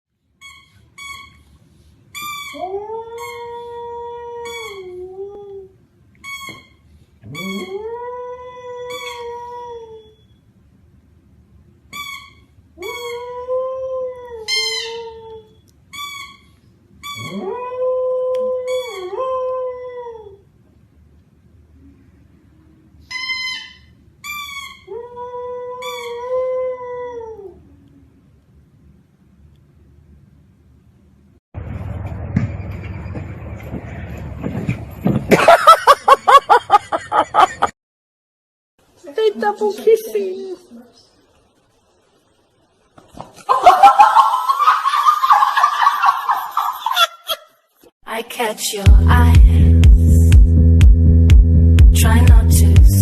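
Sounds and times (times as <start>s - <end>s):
dog yelping: 17.1s - 17.6s
dog howling: 17.2s - 20.4s.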